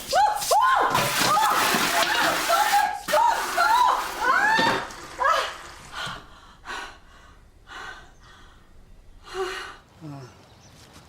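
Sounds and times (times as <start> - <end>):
person gasping breaths: 5.9 - 9.9.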